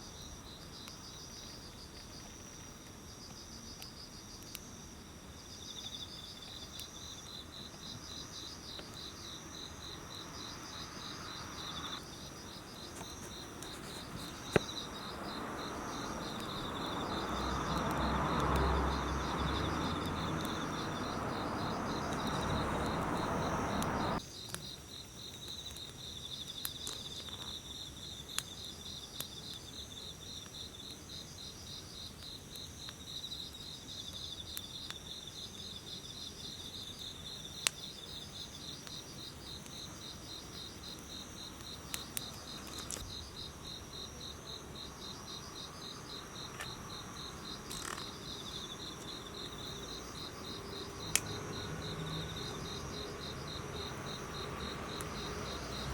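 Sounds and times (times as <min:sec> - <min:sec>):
insects chirping in trills: 0:00.0 - 0:55.9
sharp clicks: 0:47.6 - 0:48.2, 0:51.0 - 0:51.4.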